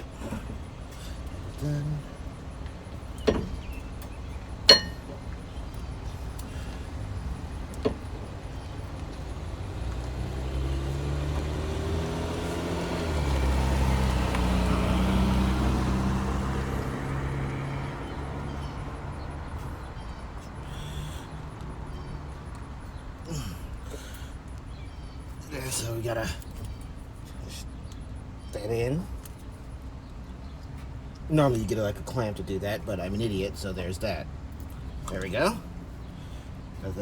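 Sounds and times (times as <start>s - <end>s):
sharp ringing clink: 4.7s - 5.2s
passing car engine: 6.0s - 23.6s.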